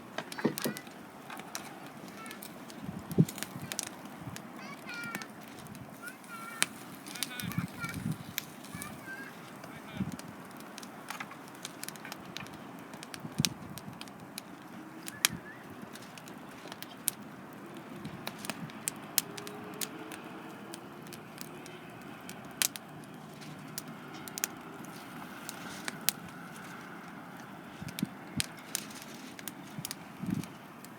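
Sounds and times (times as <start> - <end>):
wood campfire crackling: 0.0 - 30.9.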